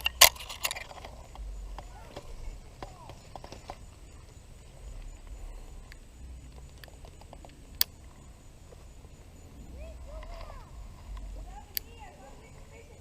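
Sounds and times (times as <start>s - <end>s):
faint rustling: 0.0s - 13.0s
light clicks: 5.0s - 8.2s.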